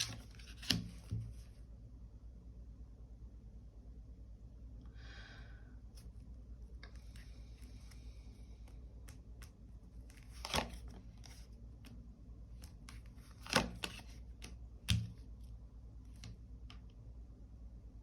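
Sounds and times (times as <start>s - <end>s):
card slaps: 0.0s - 1.3s, 9.0s - 10.9s, 12.6s - 15.2s
cards swishing on a table: 0.0s - 1.4s, 6.9s - 12.0s.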